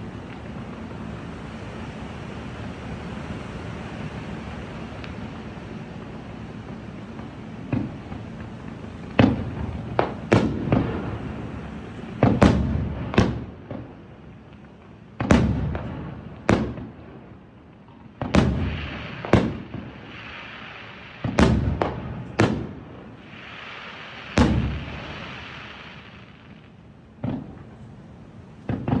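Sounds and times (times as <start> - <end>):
hissing crackle of fireworks: 0.0 - 29.0
fireworks shells bursting: 18.2 - 27.9.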